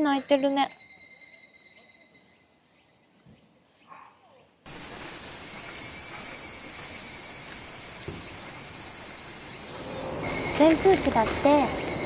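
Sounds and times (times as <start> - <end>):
cicadas singing: 4.7 - 12.0.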